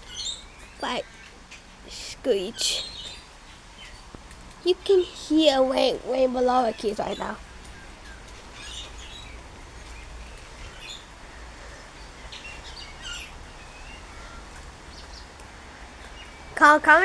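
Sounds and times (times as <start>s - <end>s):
lorikeets high-pitched calls: 0.0s - 4.1s
steady background hiss: 0.0s - 17.0s.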